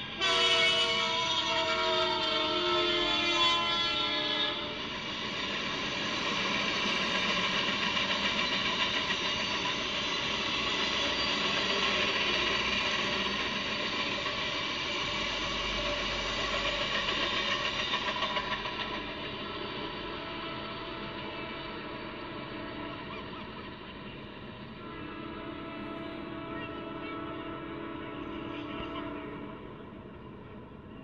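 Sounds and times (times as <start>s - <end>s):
train horn: 0.0s - 5.1s, 18.9s - 23.9s, 24.6s - 30.6s
train cars rumbling past: 0.0s - 31.0s.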